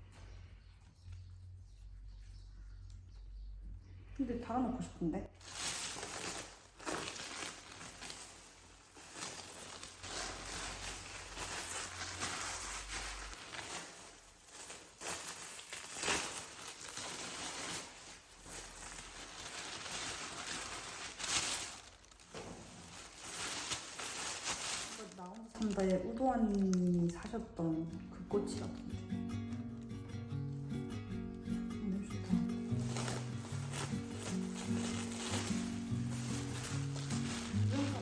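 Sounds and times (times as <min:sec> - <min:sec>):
sharp handling noises: 0:05.4 - 0:27.4, 0:32.5 - 0:38.0
packaging crinkling and rustling: 0:05.4 - 0:30.1, 0:32.4 - 0:38.0.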